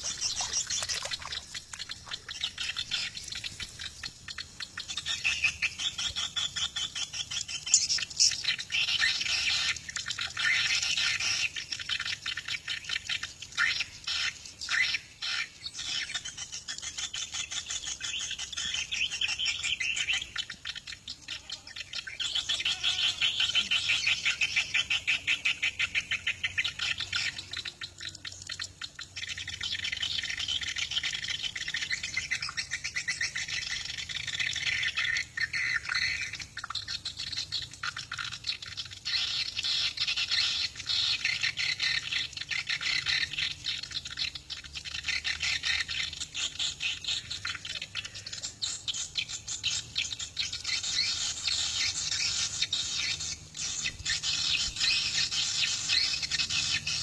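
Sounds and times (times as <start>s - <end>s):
swiftlets twittering: 0.0s - 5.5s.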